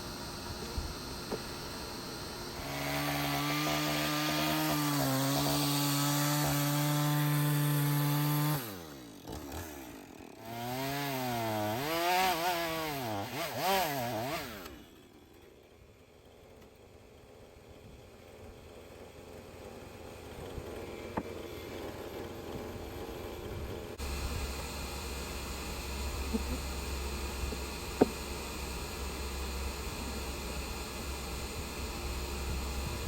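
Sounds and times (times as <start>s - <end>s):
chainsaw revving: 0.0s - 15.4s, 24.0s - 33.0s.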